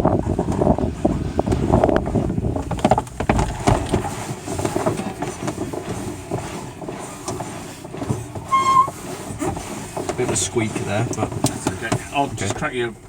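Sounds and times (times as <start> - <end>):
uneven rustling: 0.0 - 12.6
sharp clicks and knocks: 1.5 - 6.5.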